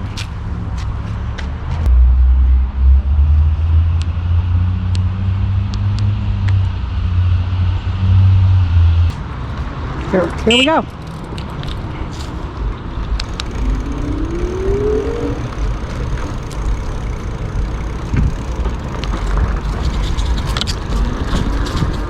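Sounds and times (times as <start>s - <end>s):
wind rumble on microphone: 0.0s - 22.0s
tyre noise: 9.1s - 22.0s
electric motor whine: 12.2s - 19.7s.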